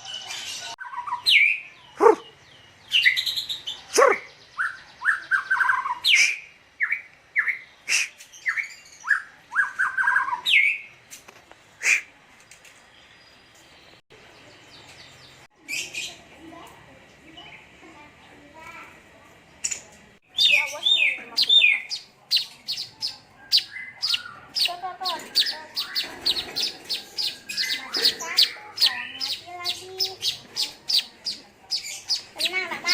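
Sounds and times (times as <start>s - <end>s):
harsh bird calls: 0.0s - 11.0s, 11.7s - 12.2s, 19.6s - 32.9s
songbirds singing and chirping: 0.0s - 32.9s.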